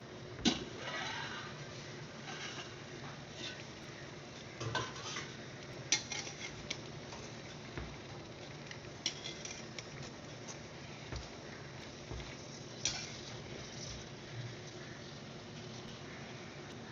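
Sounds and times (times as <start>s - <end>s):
metal pots and utensils clinking: 4.6s - 7.3s, 12.2s - 14.0s.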